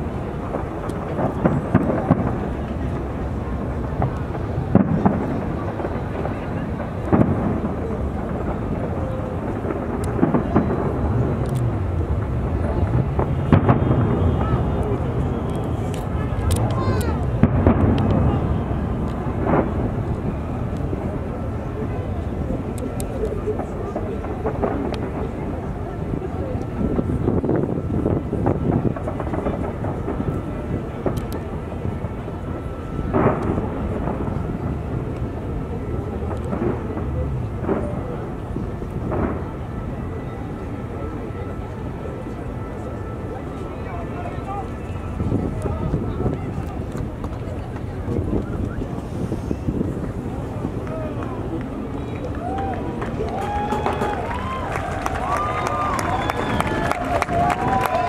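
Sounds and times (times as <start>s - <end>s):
sharp firework bangs: 0.0s - 21.1s, 26.8s - 32.2s, 32.9s - 35.4s, 36.2s - 39.9s
fireworks booming: 0.0s - 58.0s.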